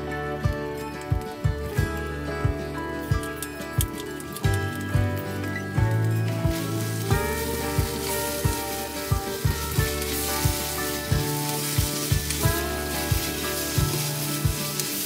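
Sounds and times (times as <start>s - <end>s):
background music with steady beat: 0.0s - 15.0s
food sizzling in a wok: 5.9s - 15.0s.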